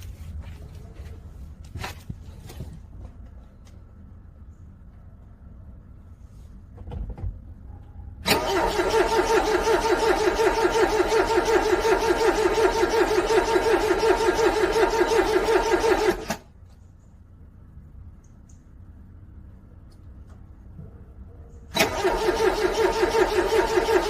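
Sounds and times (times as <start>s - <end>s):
car starter cranking engine: 8.2s - 16.5s, 21.7s - 24.0s.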